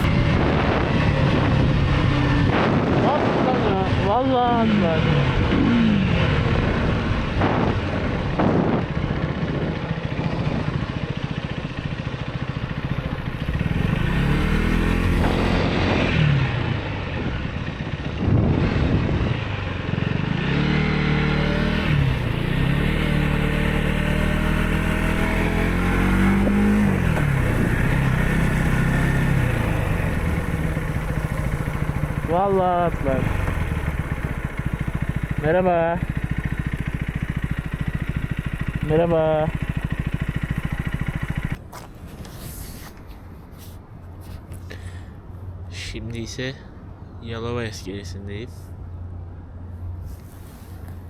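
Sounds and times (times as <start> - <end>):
motorcycle engine revving: 0.0 - 41.6
wind and road noise: 0.0 - 51.0.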